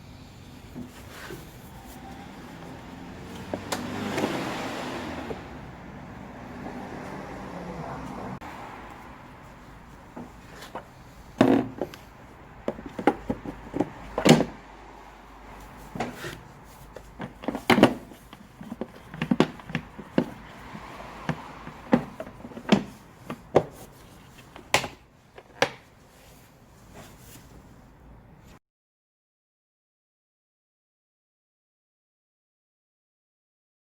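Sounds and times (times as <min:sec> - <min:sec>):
sharp knocks and clunks: 0:10.1 - 0:14.7, 0:15.9 - 0:25.8.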